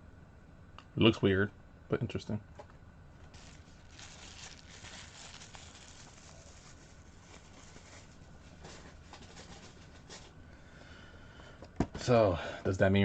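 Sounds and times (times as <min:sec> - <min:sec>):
packaging rustling: 0:03.3 - 0:10.4.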